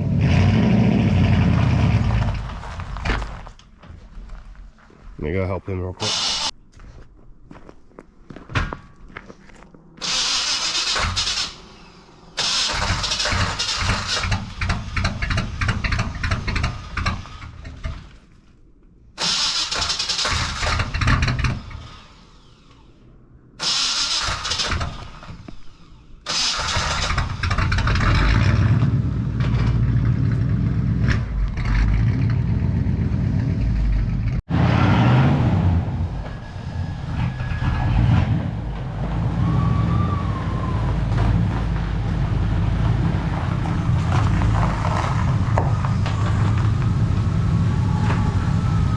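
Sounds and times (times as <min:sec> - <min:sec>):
engine running: 0:08.3 - 0:18.6, 0:19.2 - 0:48.9
engine starter cranking: 0:10.0 - 0:18.2, 0:19.2 - 0:22.9, 0:23.6 - 0:28.5.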